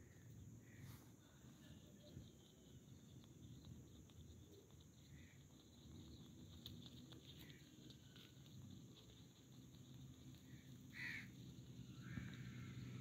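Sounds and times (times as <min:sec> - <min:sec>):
distant bird calls: 0:10.3 - 0:13.0.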